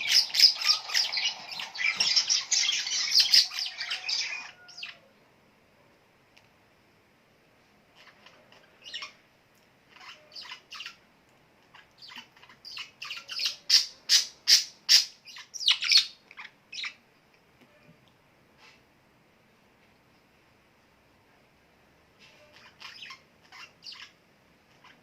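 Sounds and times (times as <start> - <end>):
bird chirping: 0.0 - 5.1, 8.0 - 9.2, 9.9 - 11.0, 11.6 - 17.0, 22.2 - 25.0.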